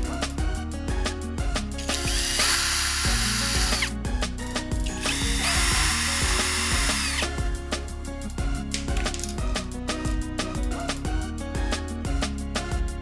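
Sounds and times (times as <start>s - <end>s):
background music with steady beat: 0.0s - 13.0s
electric power tool whining: 1.8s - 3.9s, 4.8s - 8.1s.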